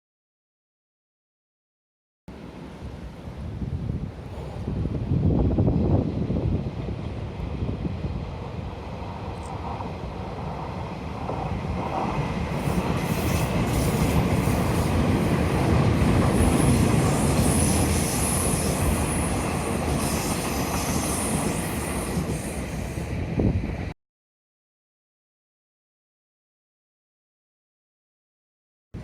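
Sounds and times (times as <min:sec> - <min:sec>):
train rumbling past: 0:02.3 - 0:23.9.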